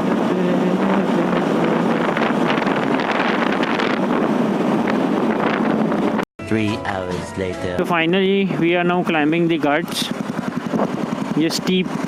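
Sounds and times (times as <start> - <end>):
motorcycle engine running: 0.0 - 6.2, 7.8 - 12.0
wind rushing over microphone: 0.0 - 6.2, 10.1 - 12.0.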